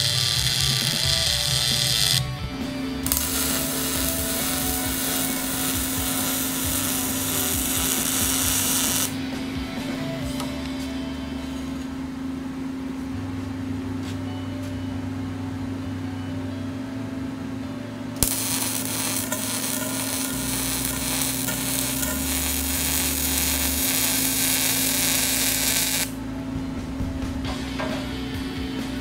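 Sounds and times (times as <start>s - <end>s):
welding arc crackling sizzle: 0.0s - 9.2s, 18.2s - 26.2s
steady low hum: 0.0s - 29.0s
welding arc striking click: 3.0s - 9.2s, 18.2s - 26.2s.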